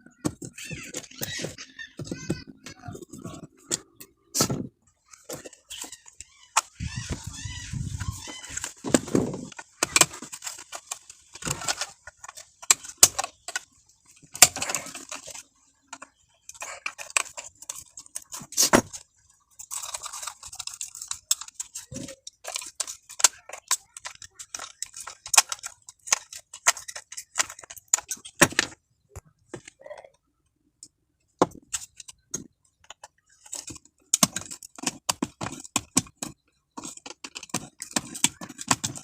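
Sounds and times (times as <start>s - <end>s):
tools clicking and tapping: 30.8s - 39.0s.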